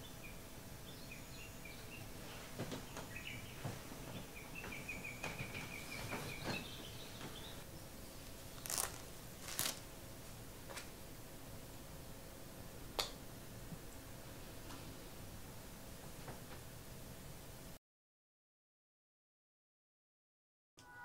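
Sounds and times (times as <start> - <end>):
bird chirping: 0.0 - 9.0
bedding rustling: 2.2 - 2.9, 3.5 - 7.6, 8.6 - 9.9.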